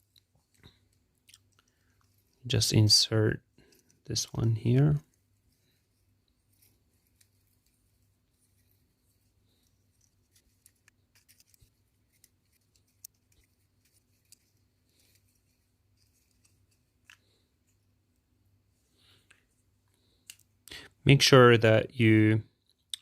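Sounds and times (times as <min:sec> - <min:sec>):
small parts clicking by hand: 0:00.0 - 0:02.4, 0:09.5 - 0:17.4.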